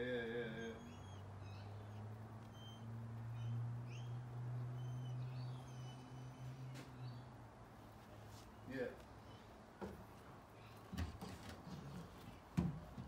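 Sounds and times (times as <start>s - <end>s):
birds chirping and whistling: 0.6s - 7.4s.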